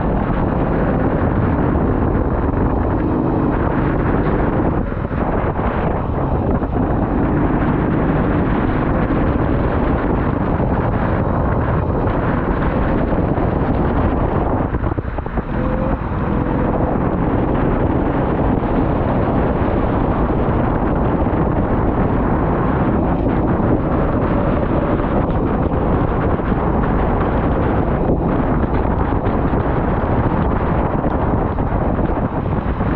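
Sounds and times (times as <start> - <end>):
vehicle running: 0.0 - 32.9
wind buffeting microphone: 0.0 - 32.9.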